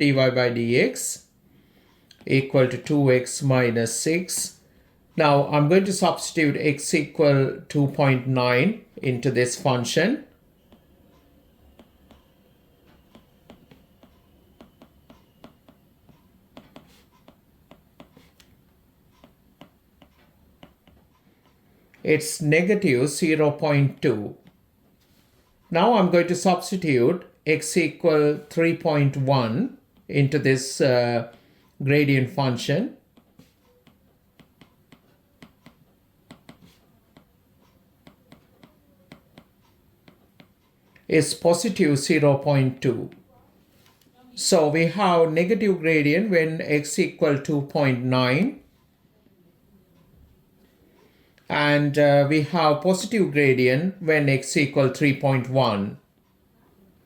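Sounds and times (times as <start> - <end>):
pen writing ticks: 10.6 - 21.6, 33.1 - 41.1
faint light taps and clicks: 10.7 - 22.0.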